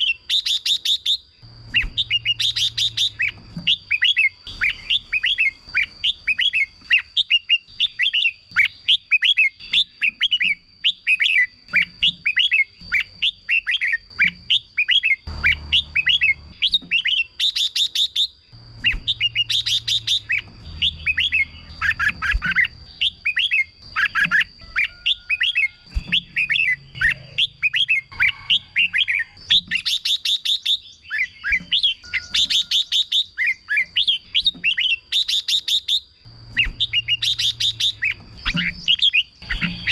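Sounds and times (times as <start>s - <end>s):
bulbuls chirping song: 0.0s - 39.9s
harsh bird rattling: 11.8s - 30.5s.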